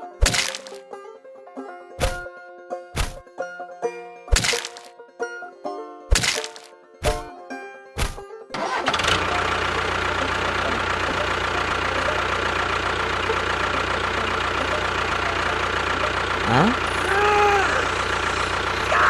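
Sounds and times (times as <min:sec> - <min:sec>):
sharp cracks: 0:00.0 - 0:00.8, 0:03.0 - 0:03.2, 0:04.3 - 0:04.9, 0:06.1 - 0:07.3, 0:08.0 - 0:08.2
small engine running: 0:00.0 - 0:00.8, 0:08.6 - 0:19.0.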